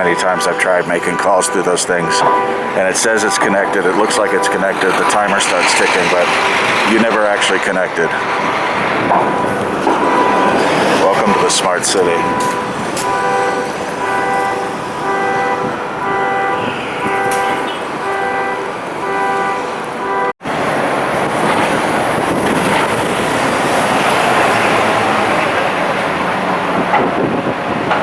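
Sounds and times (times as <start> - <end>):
car alarm horn blasts: 0.0 - 20.4
city traffic noise: 0.0 - 28.0.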